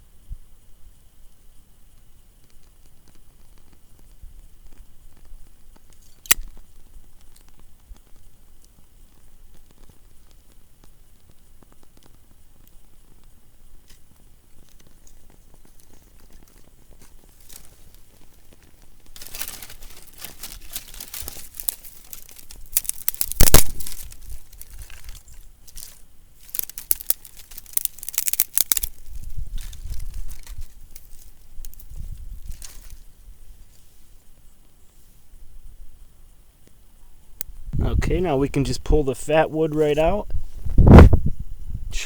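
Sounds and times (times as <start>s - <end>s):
kindling crackling and snapping: 1.9s - 33.8s, 37.4s - 41.2s
rustling: 13.9s - 34.3s.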